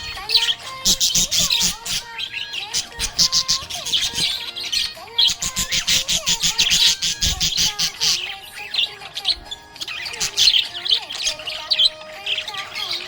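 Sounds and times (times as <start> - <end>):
budgerigar chirping: 0.0 - 13.0.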